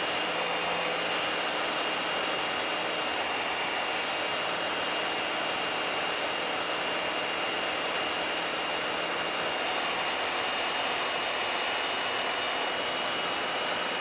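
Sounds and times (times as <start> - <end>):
aircraft engine drone: 0.0 - 14.0.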